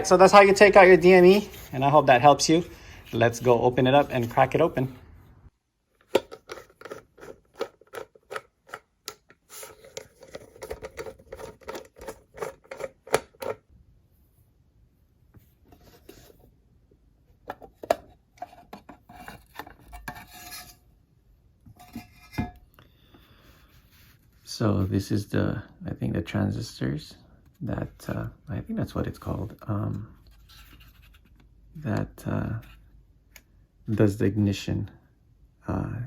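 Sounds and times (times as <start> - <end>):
handling noises: 6.0 - 13.7
hand tool clicking and scraping casing: 6.1 - 13.6.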